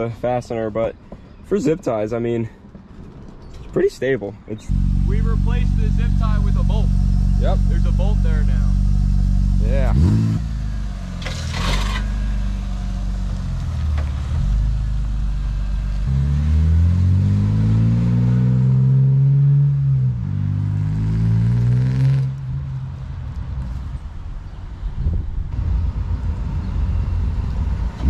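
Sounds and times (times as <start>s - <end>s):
car engine accelerating: 4.7s - 22.5s.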